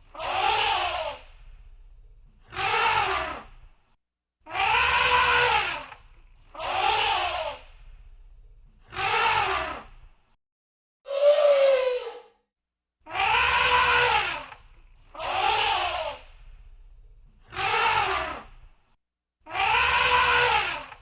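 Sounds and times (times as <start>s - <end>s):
elephant trumpeting: 4.6s - 5.8s, 13.2s - 14.4s, 19.6s - 20.9s.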